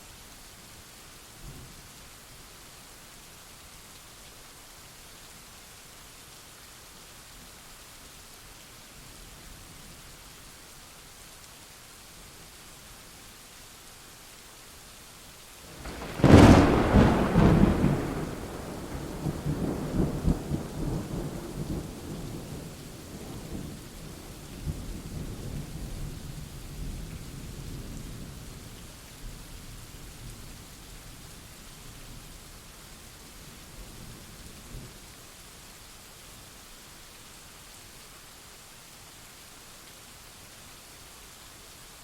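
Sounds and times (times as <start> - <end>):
rain hiss: 0.0 - 42.0
thunder crack and rumble: 15.7 - 23.8.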